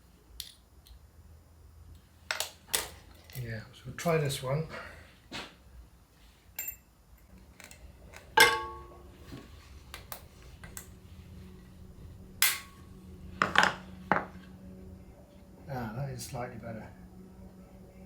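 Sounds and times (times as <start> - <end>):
metal washer clicking and clinking: 6.6 - 6.8, 7.6 - 8.9.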